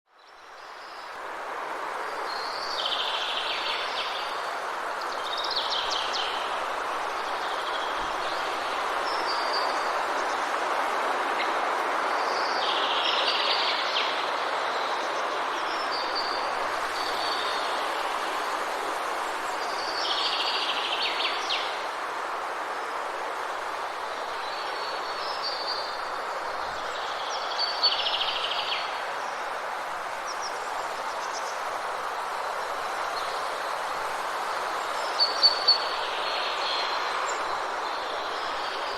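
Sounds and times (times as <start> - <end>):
rushing water: 0.2 - 38.9
songbird singing: 24.3 - 28.9, 34.8 - 38.9.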